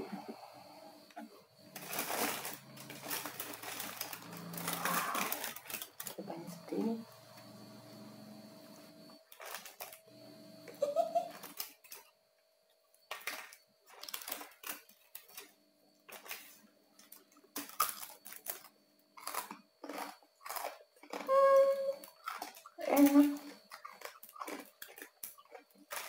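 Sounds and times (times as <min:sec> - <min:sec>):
crunching and chewing crispy food: 0:01.6 - 0:06.3, 0:09.2 - 0:10.0, 0:11.3 - 0:12.1, 0:13.0 - 0:26.0.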